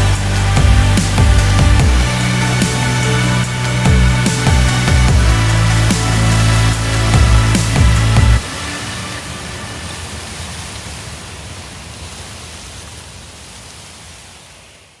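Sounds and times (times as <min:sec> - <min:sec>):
electronic music: 0:00.0 - 0:10.1
hiss-like noise: 0:00.0 - 0:15.0.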